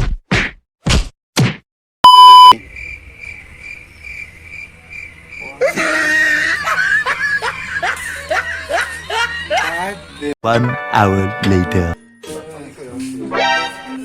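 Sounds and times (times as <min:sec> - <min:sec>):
loud short beep: 0:02.0 - 0:02.6
cricket chirps: 0:02.6 - 0:07.2.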